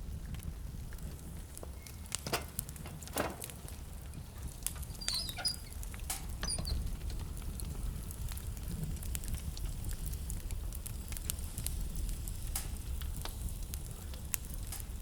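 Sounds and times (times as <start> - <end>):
fire popping: 0.0 - 15.0
wood fire crackling: 0.0 - 15.0
high-pitched squeaks: 5.0 - 5.7.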